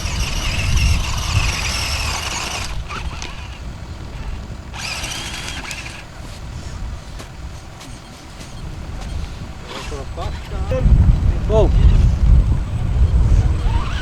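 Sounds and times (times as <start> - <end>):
rc car motor whining: 0.0 - 6.3, 11.5 - 14.0.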